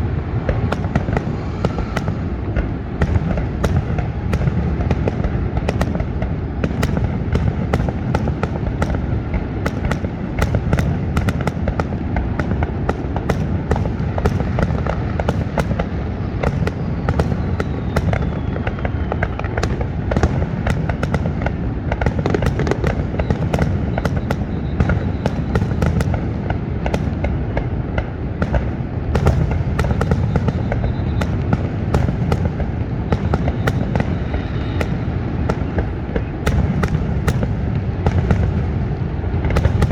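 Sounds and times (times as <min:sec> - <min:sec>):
low rumble: 0:00.0 - 0:05.7
fireworks cracks and booms: 0:00.0 - 0:39.9.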